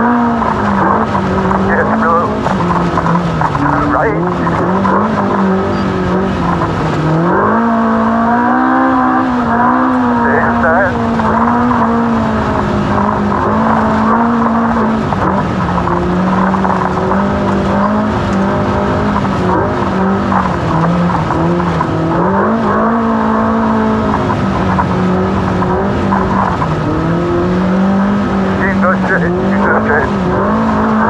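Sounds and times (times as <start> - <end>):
race car engine at high revs: 0.0 - 31.0.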